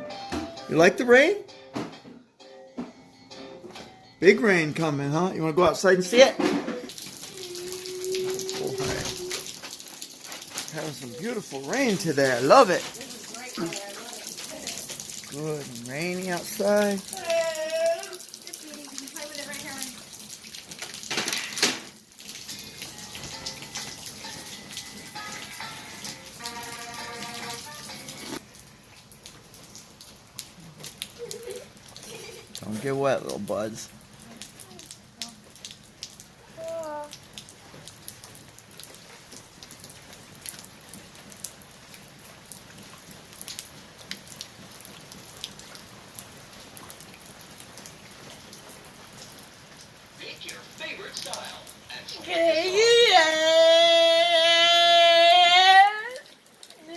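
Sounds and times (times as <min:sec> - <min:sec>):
rain falling: 0:04.2 - 0:56.9
heavy rain hissing: 0:06.9 - 0:20.1, 0:50.0 - 0:56.2
raindrops ticking close by: 0:06.9 - 0:56.9.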